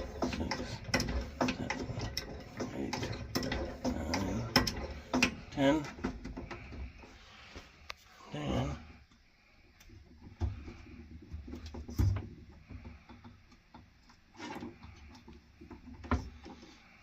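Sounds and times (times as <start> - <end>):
objects knocking and clicking: 0.0 - 7.2.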